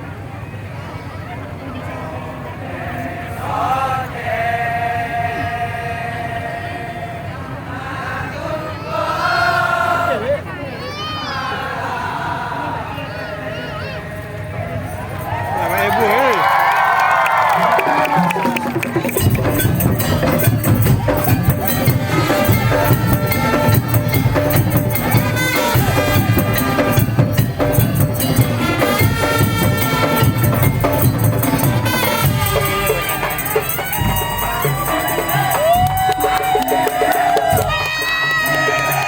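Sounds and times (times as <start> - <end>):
traditional percussion music: 15.2 - 39.0.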